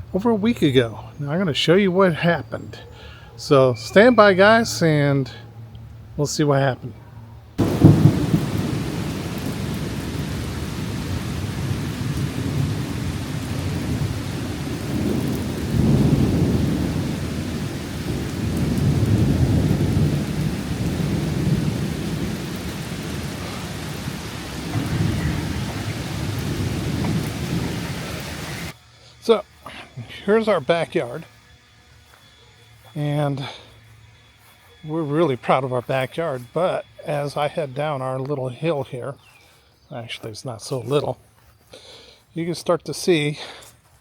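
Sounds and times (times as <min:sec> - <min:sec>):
rolling thunder: 0:07.6 - 0:28.8
heavy rain: 0:07.6 - 0:31.1.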